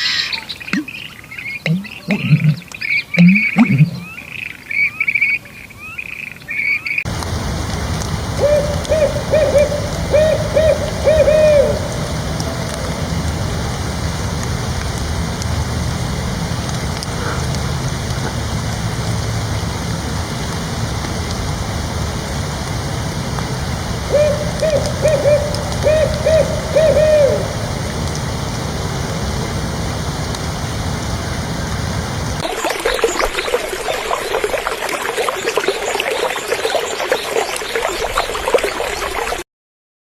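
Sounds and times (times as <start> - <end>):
steady rushing noise: 7.1 - 32.4
bird hooting: 8.2 - 14.0, 24.0 - 28.3
small birds chirping: 8.3 - 13.5, 24.1 - 27.8.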